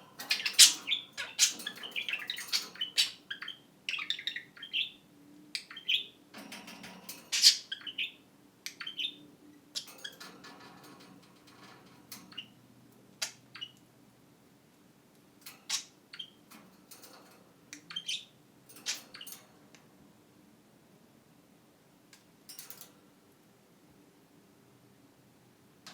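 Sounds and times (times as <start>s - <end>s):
budgerigars chirping: 0.2s - 5.0s, 5.6s - 6.2s, 7.3s - 9.2s, 17.8s - 19.3s.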